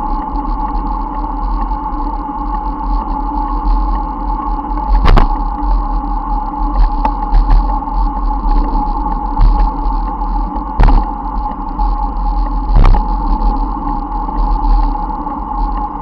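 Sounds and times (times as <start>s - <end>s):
bicycle road noise: 0.0s - 16.0s.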